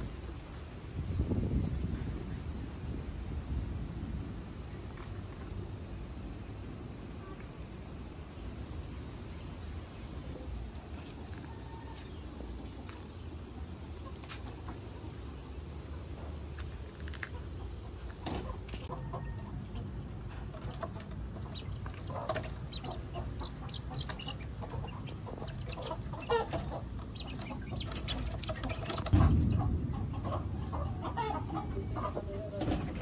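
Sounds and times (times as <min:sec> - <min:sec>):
chickens clucking: 0:10.2 - 0:33.0
loud low rumble: 0:22.7 - 0:32.0.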